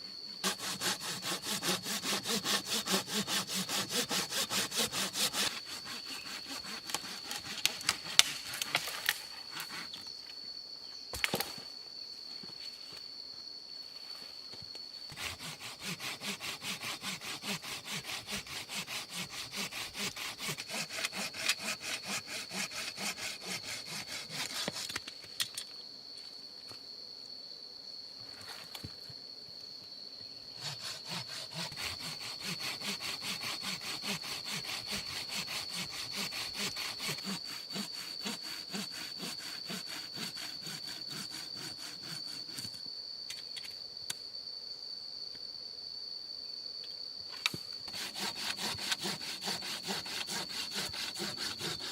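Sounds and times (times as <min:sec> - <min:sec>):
saw cutting through wood: 0:00.4 - 0:08.8, 0:15.2 - 0:24.9, 0:30.6 - 0:42.6, 0:47.9 - 0:51.9.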